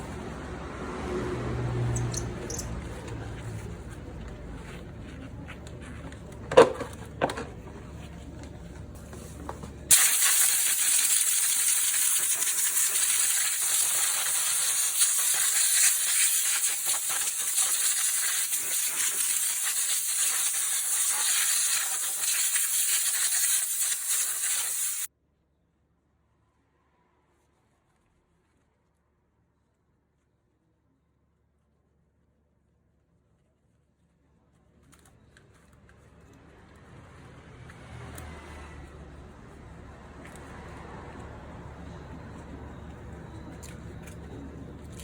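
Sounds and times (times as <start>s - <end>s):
sharp clicks: 2.0s - 2.8s
high-pressure jet hissing: 9.9s - 25.1s.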